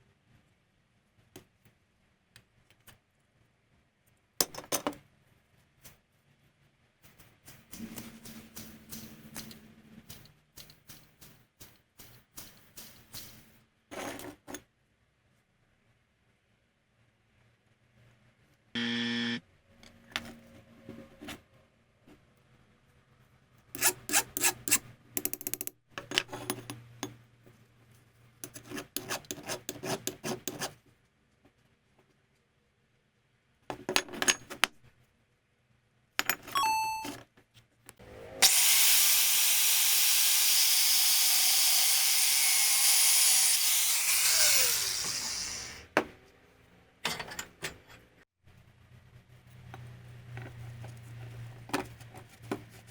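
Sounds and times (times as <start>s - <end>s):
power tool hissing: 38.4s - 45.9s.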